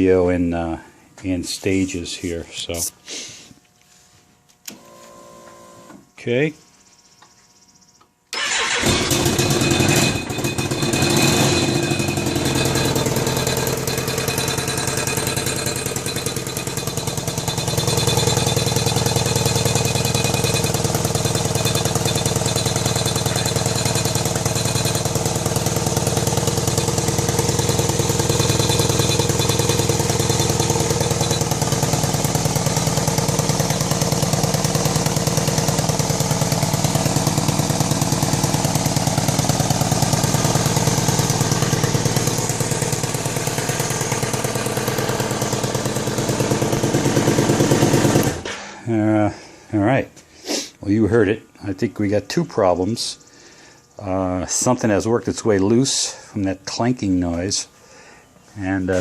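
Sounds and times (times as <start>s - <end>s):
motorcycle engine starting and idling: 8.3s - 49.4s
exhaust pipe clanking rattle: 8.7s - 48.7s.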